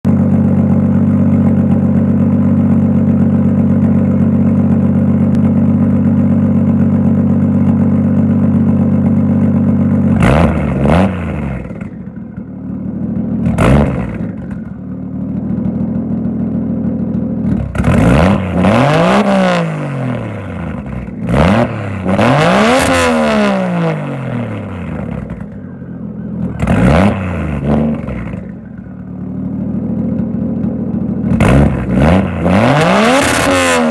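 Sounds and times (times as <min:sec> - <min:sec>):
car engine idling: 0:00.0 - 0:33.9
engine revving: 0:09.9 - 0:12.1, 0:13.3 - 0:14.8, 0:17.4 - 0:30.1, 0:31.2 - 0:33.9.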